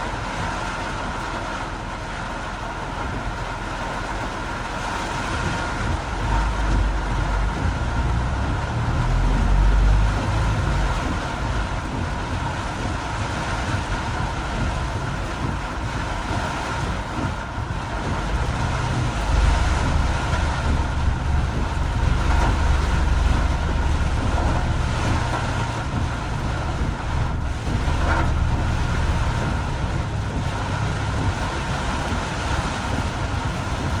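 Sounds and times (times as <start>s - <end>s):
car and road noise in rain: 0.0s - 34.0s
hiss of water from tyres: 0.0s - 34.0s
low rumble: 4.2s - 34.0s.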